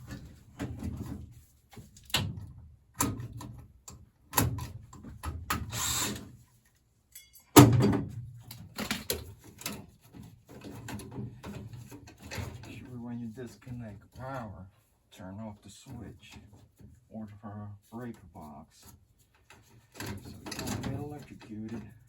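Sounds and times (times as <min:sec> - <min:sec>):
knocks and clunks on sheet metal: 0:07.6 - 0:12.7.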